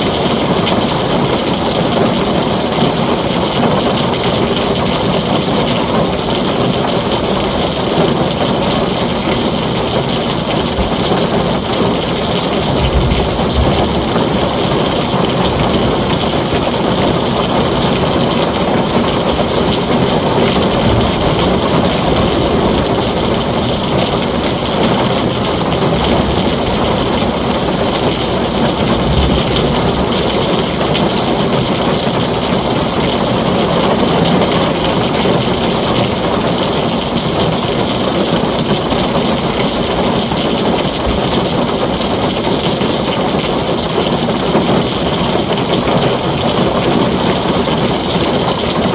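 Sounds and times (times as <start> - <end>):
heavy rain on a tin roof: 0.0 - 48.9
low rumble: 12.4 - 17.7, 19.4 - 31.3.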